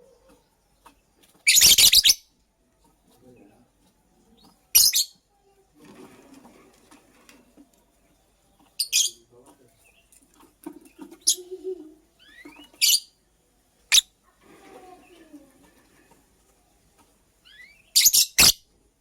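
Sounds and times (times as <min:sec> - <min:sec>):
lovebird chirping: 0:01.4 - 0:02.3, 0:11.2 - 0:13.2, 0:13.9 - 0:14.1, 0:17.4 - 0:18.7.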